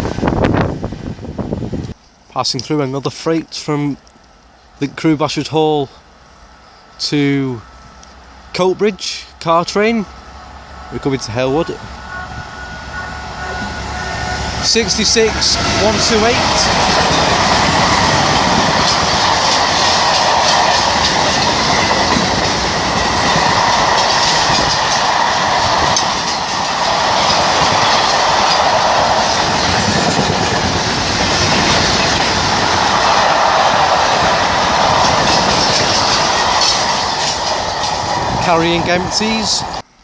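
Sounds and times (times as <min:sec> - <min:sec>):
rushing rail noise: 0:00.0 - 0:40.0
train wheels clattering over rail joints: 0:15.0 - 0:33.3, 0:34.1 - 0:38.8.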